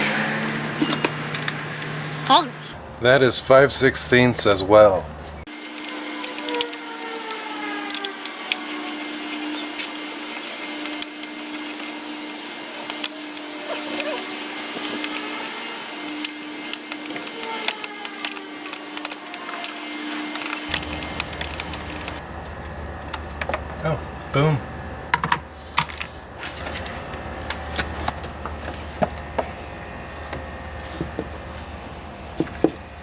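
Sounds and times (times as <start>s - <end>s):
steady hum: 8.3s - 33.0s.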